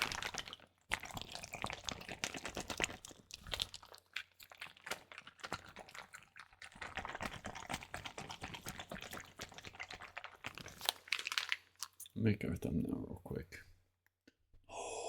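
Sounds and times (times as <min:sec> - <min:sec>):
water-filled plastic bag squelching: 0:00.0 - 0:12.1.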